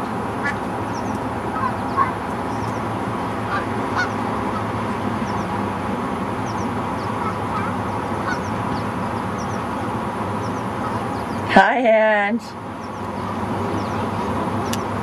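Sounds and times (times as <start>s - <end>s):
waterfowl honking: 0.4s - 2.7s, 3.4s - 5.4s, 6.5s - 9.7s, 10.4s - 11.3s
small birds chirping faintly: 0.4s - 5.6s, 6.4s - 11.5s, 12.6s - 15.0s.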